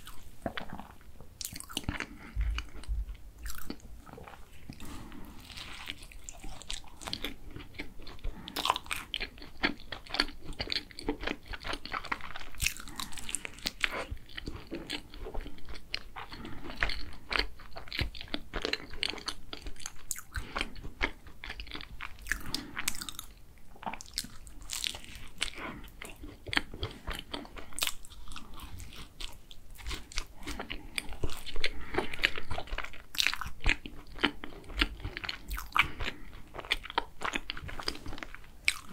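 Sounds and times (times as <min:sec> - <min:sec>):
biting and chewing: 0:00.0 - 0:38.9.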